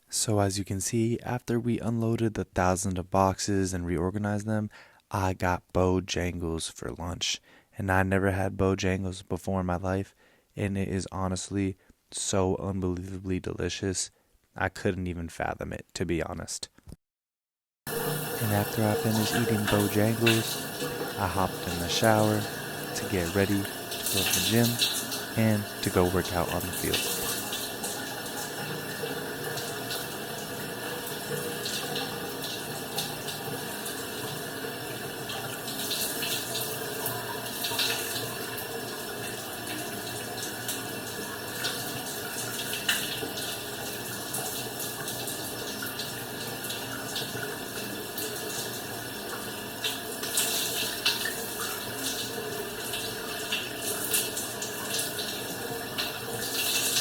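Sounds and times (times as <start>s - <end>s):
water splashing: 17.9s - 30.4s
shower spray: 18.0s - 25.9s.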